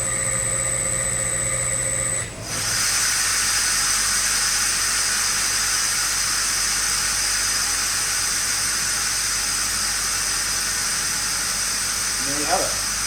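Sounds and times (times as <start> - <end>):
air compressor running: 0.0 - 13.0
air hissing out: 2.6 - 13.0.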